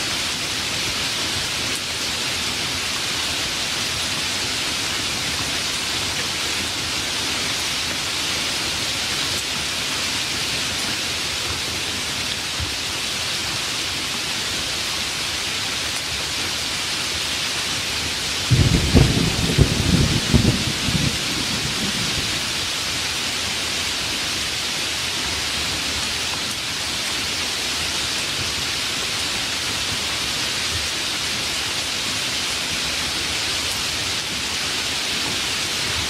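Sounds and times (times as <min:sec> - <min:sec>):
steady rain: 0:00.0 - 0:36.0
thunder rumble: 0:18.5 - 0:22.4.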